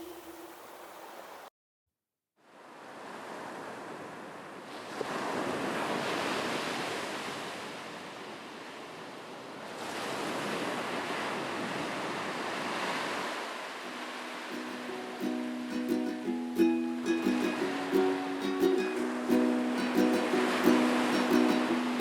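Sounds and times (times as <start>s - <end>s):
ocean waves breaking on shore: 2.4s - 22.0s.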